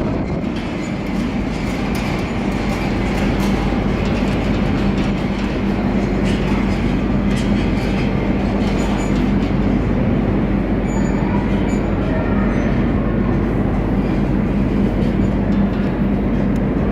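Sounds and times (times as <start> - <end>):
metro train rumbling: 0.0 - 16.9.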